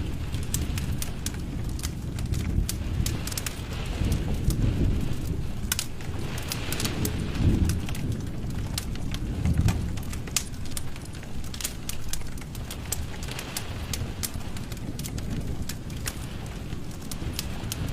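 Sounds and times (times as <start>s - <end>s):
low rumble of flame: 0.0s - 17.9s
wood fire crackling and popping: 0.0s - 17.9s.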